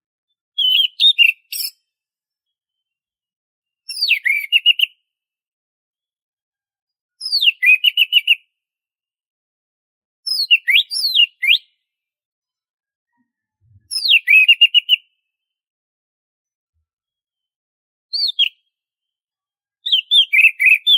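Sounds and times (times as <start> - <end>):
thrush singing whistled phrases: 0.6 - 1.8, 3.9 - 5.0, 7.2 - 8.4, 10.3 - 11.7, 13.9 - 15.2, 18.1 - 18.6, 19.8 - 20.9.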